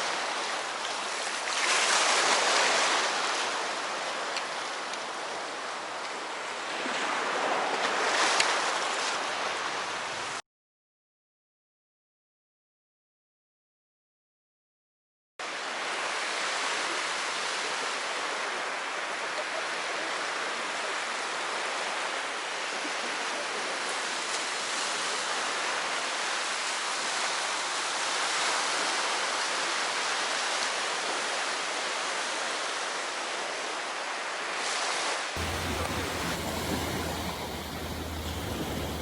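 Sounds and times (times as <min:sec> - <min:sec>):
water rushing: 0:31.0 - 0:39.0.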